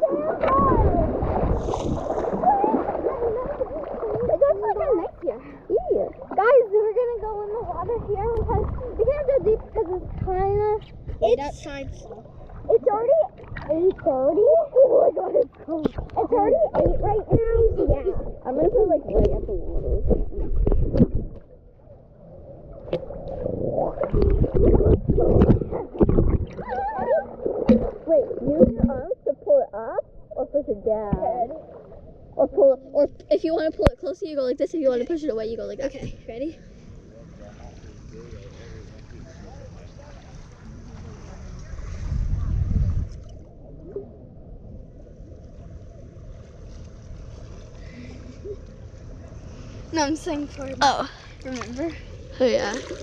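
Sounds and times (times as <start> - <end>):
wind rumble on microphone: 0.0 - 6.5, 7.1 - 14.6, 15.6 - 21.6, 22.7 - 29.4, 35.9 - 50.8
water sloshing and gurgling: 0.0 - 53.0.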